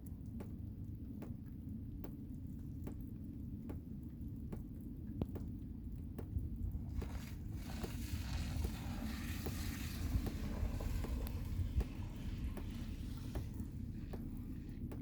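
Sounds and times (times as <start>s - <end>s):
light ticks: 0.0s - 15.0s
blizzard wind: 6.1s - 15.0s.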